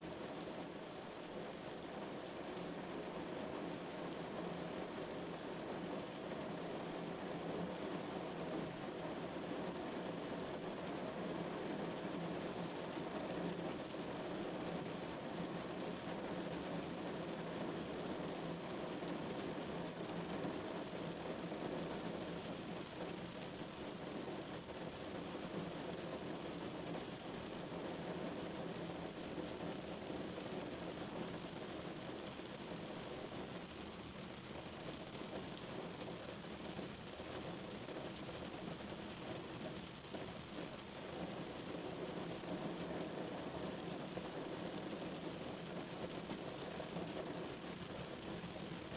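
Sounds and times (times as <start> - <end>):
rain falling on a car: 0.0 - 48.9.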